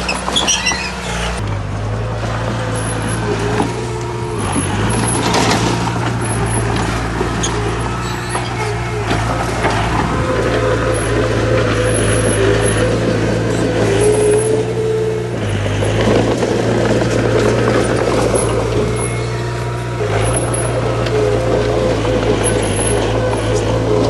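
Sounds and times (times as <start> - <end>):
diesel earthmoving machinery: 0.0 - 24.0
scattered clatter: 2.8 - 14.9.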